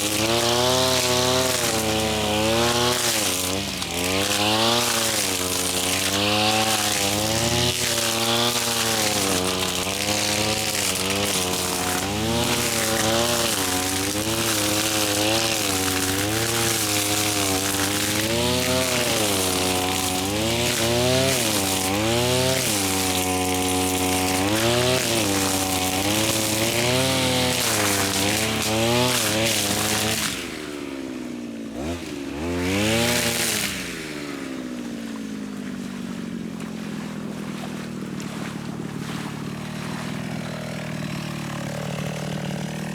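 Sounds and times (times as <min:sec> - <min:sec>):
lawn mower engine cutting grass: 0:00.0 - 0:42.9.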